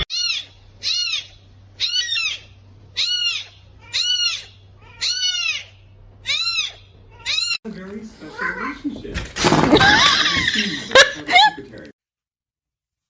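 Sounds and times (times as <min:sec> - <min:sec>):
animal high-pitched calls: 0:00.0 - 0:07.6.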